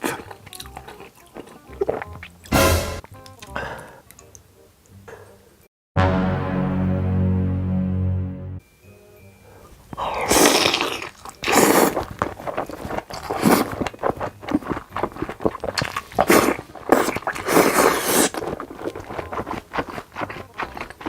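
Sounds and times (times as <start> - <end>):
chewing and mouth smacking: 0.0 - 2.5, 10.0 - 21.0
loud bites or slurps: 10.1 - 21.0.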